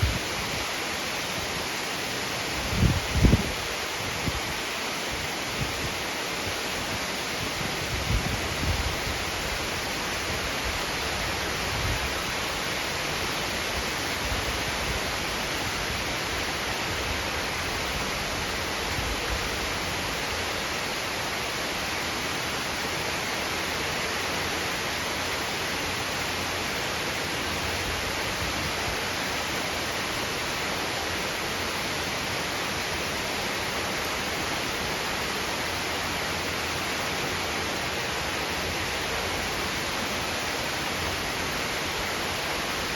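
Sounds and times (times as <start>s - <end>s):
heavy rain pouring: 0.0s - 42.9s.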